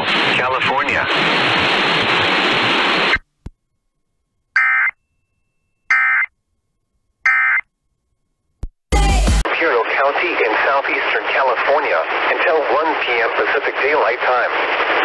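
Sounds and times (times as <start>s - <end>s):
radio broadcast hiss: 0.0s - 3.2s, 9.4s - 15.0s.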